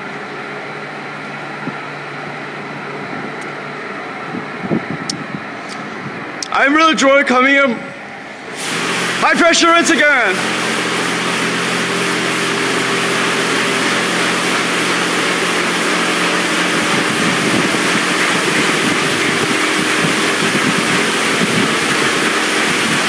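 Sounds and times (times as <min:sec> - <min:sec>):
machine hum: 0:07.6 - 0:23.0
water jets spraying on car: 0:08.5 - 0:23.0.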